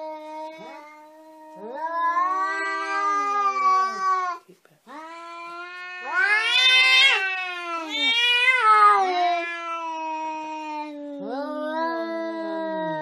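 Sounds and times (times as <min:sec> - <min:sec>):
cat yowling: 0:05.0 - 0:13.0.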